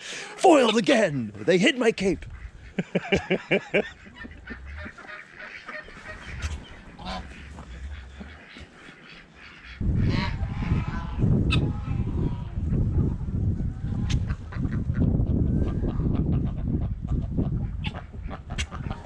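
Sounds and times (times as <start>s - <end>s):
birds calling: 0.0s - 10.3s.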